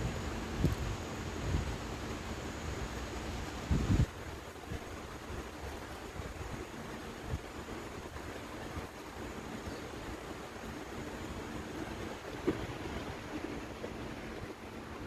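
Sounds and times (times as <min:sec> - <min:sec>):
wind on microphone: 0:00.0 - 0:02.2, 0:03.4 - 0:08.9.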